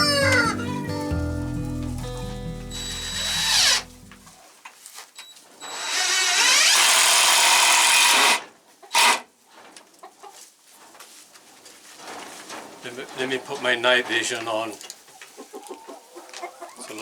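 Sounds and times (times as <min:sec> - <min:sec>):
power drill running: 0:02.7 - 0:04.2, 0:05.6 - 0:08.4.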